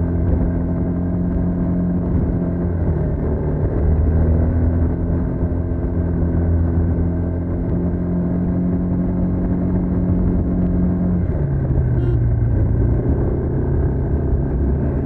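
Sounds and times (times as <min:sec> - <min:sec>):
scooter engine running: 0:12.0 - 0:12.3.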